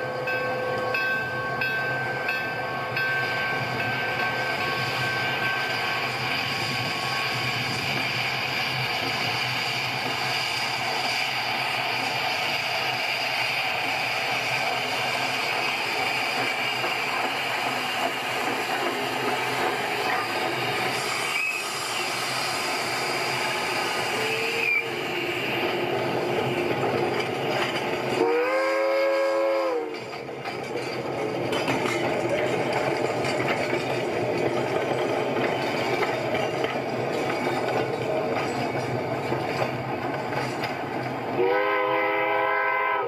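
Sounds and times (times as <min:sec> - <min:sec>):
train running: 0:00.0 - 0:43.0
train whistle blast: 0:24.1 - 0:25.7, 0:28.1 - 0:30.0, 0:41.4 - 0:43.0.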